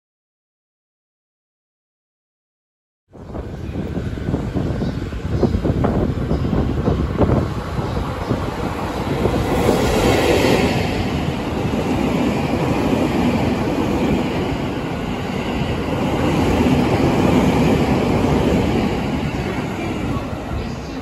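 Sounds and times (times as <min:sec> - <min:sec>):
train wheels rolling on rails: 0:03.3 - 0:21.0.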